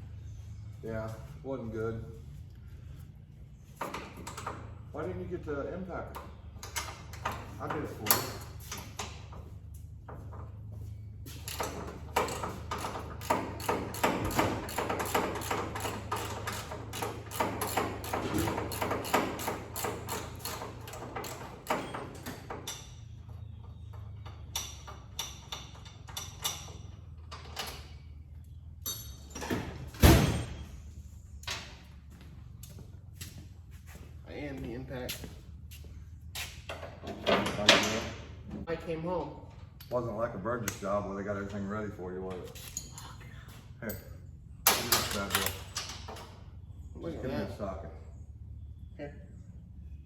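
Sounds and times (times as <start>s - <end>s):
ratchet clicking: 11.5s - 21.9s
metal tools clinking: 28.8s - 29.6s, 42.5s - 46.2s.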